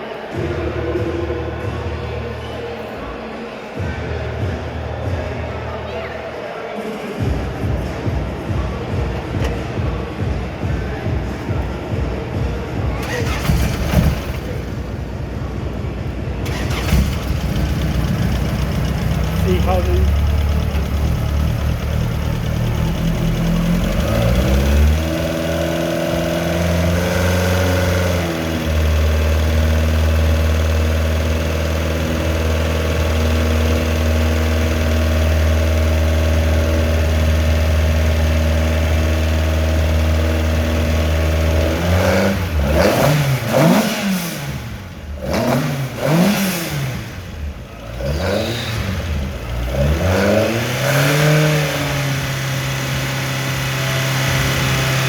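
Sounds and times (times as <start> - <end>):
car engine revving: 13.0 - 55.0.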